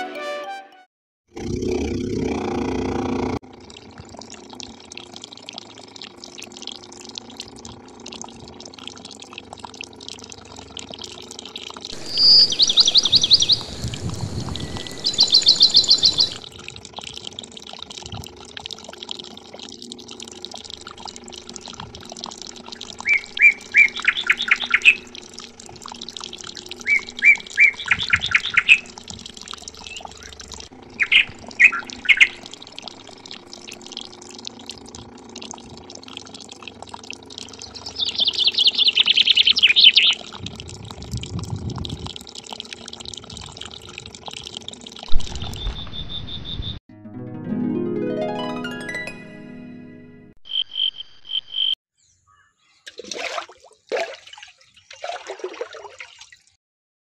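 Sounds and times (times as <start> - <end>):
water trickling into a channel: 3.4 - 45.6, 52.8 - 56.6
birds chirping: 12.0 - 16.4, 22.6 - 25.3, 26.2 - 29.0, 29.7 - 34.2, 37.4 - 40.4, 45.2 - 46.8.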